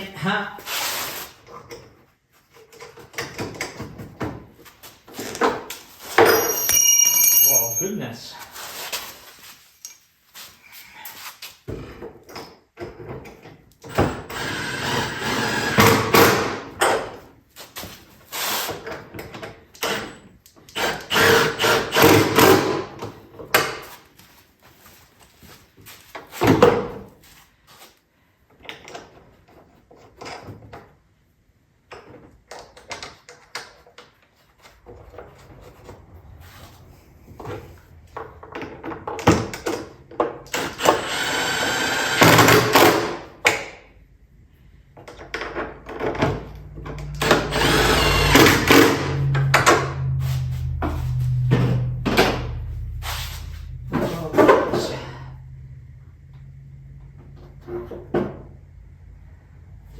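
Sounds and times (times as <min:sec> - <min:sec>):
rattling and scraping: 0:45.0 - 0:58.6.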